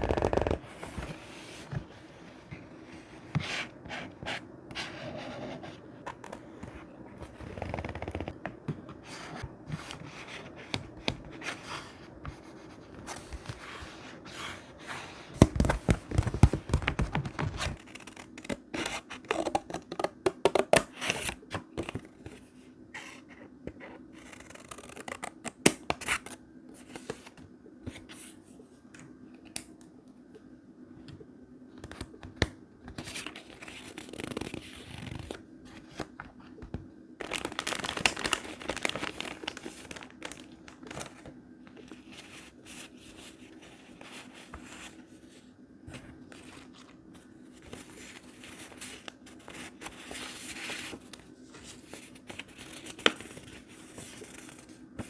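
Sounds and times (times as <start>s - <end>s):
paper scraping and rustling: 37.2s - 47.0s.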